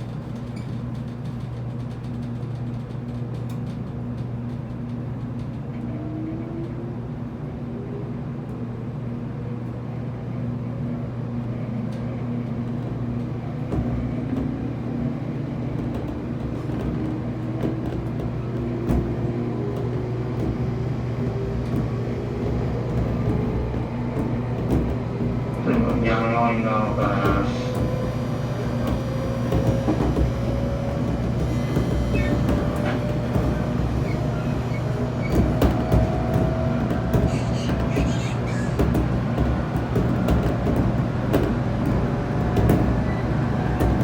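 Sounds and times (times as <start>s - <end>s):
train wheels on rails: 0.0s - 44.0s
train traction motor whine: 12.2s - 44.0s.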